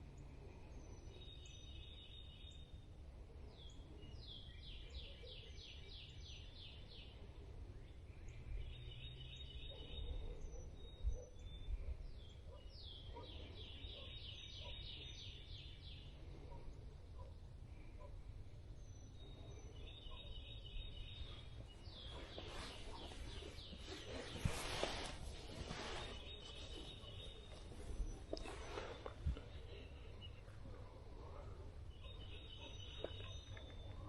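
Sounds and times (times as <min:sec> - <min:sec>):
songbirds whistling and trilling: 0:00.0 - 0:34.0
low outdoor rumble: 0:20.6 - 0:34.0.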